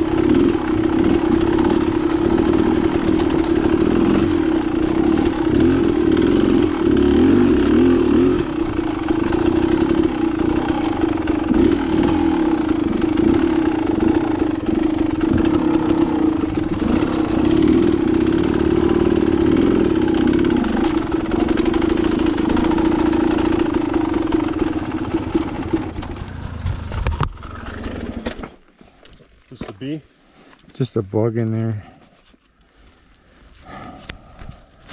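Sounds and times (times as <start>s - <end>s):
dirt bike engine running: 0.0s - 28.5s
rattling: 8.4s - 28.6s.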